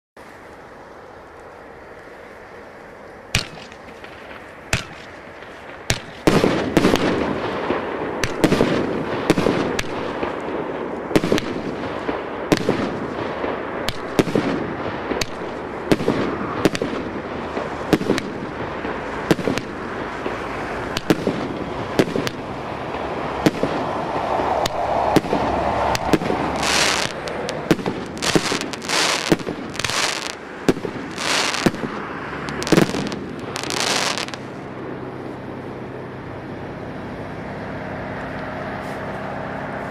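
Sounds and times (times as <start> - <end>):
fireworks crackling: 0.2 - 36.2
fireworks bangs: 3.3 - 34.6
fireworks bursts: 3.3 - 34.7.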